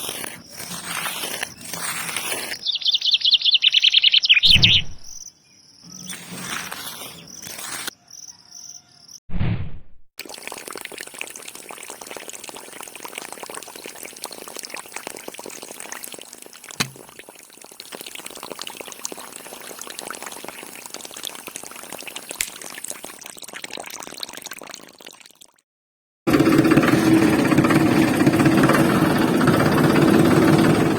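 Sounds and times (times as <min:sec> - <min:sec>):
water pouring and splashing: 0:00.0 - 0:02.7, 0:10.2 - 0:25.6.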